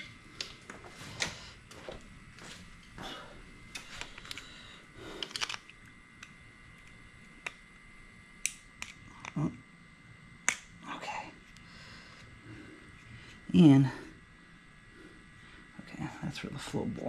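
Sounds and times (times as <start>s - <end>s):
small metal parts clicking: 3.7s - 4.5s, 5.1s - 7.6s.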